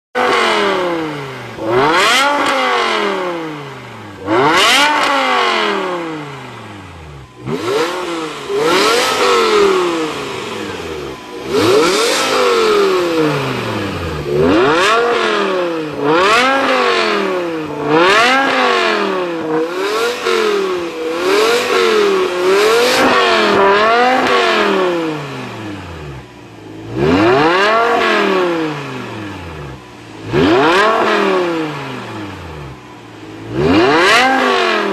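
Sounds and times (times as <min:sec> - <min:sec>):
car engine revving: 0:00.2 - 0:34.9.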